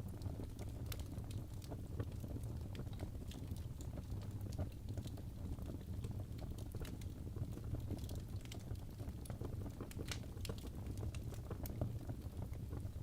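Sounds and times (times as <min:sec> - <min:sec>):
low rumble of flames: 0:00.0 - 0:13.0
logs crackling and popping: 0:00.1 - 0:13.0.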